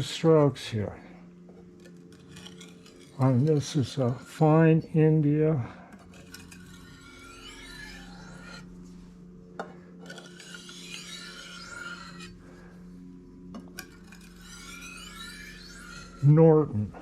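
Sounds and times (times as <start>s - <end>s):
knife scraping on honing stone: 1.6s - 4.6s, 5.9s - 8.7s, 9.6s - 12.7s, 13.5s - 16.3s.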